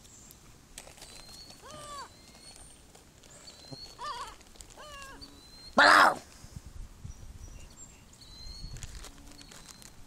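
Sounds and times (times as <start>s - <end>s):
rising and falling bird calls: 1.1s - 6.2s.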